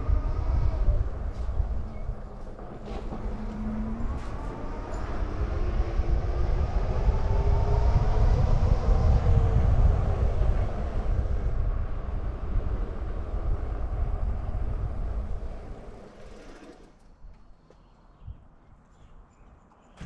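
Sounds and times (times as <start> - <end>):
wind buffeting microphone: 0.0 - 17.4.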